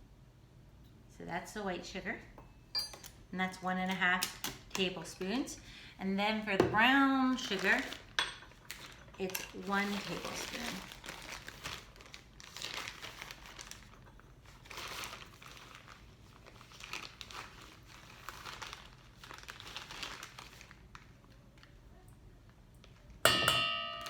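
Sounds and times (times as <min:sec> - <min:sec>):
packaging crinkling: 0:07.2 - 0:21.8.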